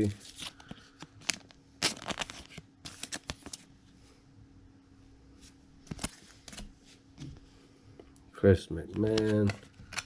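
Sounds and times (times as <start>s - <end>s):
trading cards flipping: 0.0s - 3.7s, 5.8s - 6.8s, 8.9s - 10.0s.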